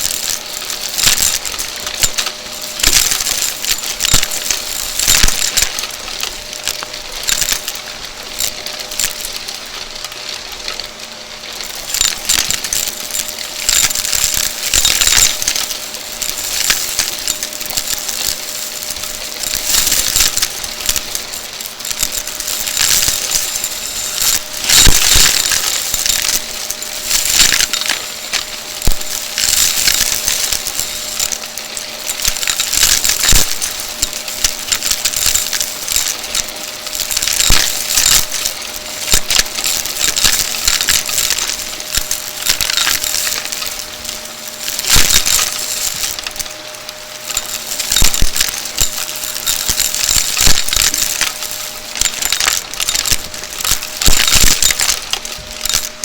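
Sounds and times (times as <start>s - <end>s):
debris rattling in vacuum nozzle: 0.0s - 56.0s
vacuum cleaner motor hum: 52.6s - 56.0s.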